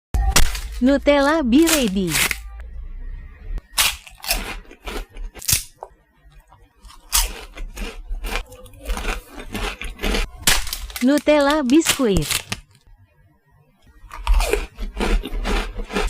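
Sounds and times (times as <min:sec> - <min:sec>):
wafer snack crunching: 0:03.8 - 0:05.7, 0:06.8 - 0:12.8, 0:14.0 - 0:16.0.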